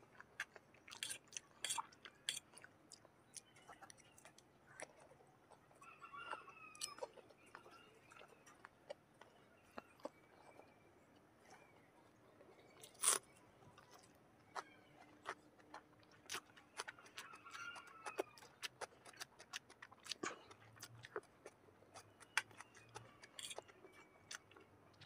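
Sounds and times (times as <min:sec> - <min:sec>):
chewing food: 0:00.0 - 0:25.0.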